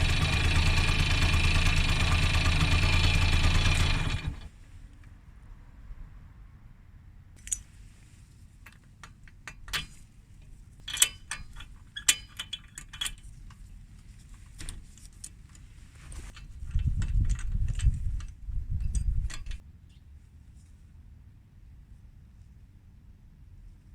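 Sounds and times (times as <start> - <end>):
metallic clicks of hand tools: 7.4 - 7.7, 8.6 - 10.1, 10.8 - 13.6, 16.7 - 19.6.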